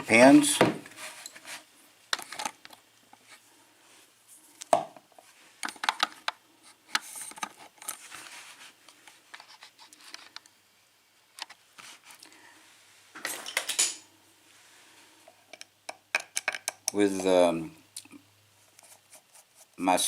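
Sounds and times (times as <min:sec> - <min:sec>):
small metal clicks and taps: 0:15.5 - 0:17.0.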